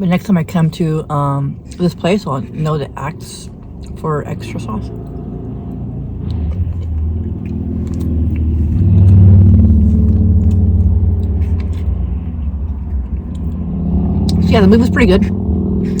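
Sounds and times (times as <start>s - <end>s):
car engine rumble: 0.0s - 16.0s.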